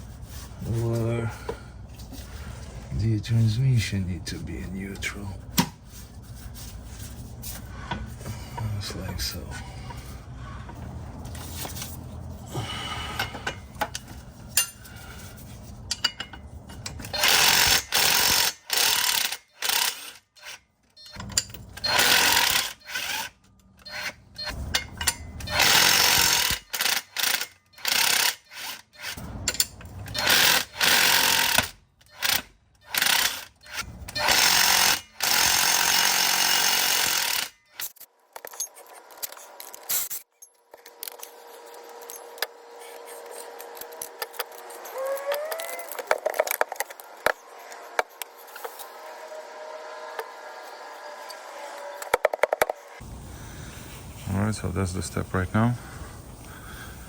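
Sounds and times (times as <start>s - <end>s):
pneumatic wrench bursts: 17.0s - 20.6s, 21.8s - 37.8s.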